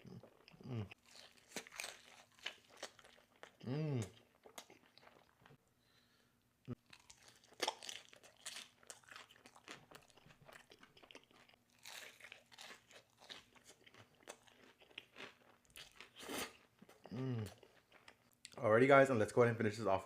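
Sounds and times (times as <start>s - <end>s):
person chewing: 0.0s - 5.6s, 6.6s - 18.6s
crunchy bites: 1.0s - 4.8s, 6.8s - 16.6s.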